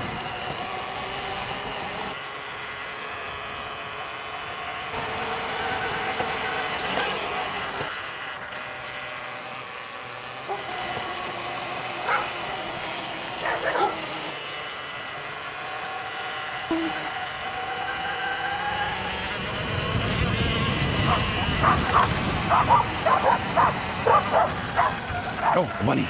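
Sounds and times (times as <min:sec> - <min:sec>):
electric dirt bike motor whine: 0:00.0 - 0:26.0
dog barking: 0:10.5 - 0:10.7, 0:12.0 - 0:12.4, 0:13.4 - 0:14.1, 0:21.0 - 0:25.7
tyre and wind noise: 0:18.9 - 0:25.6.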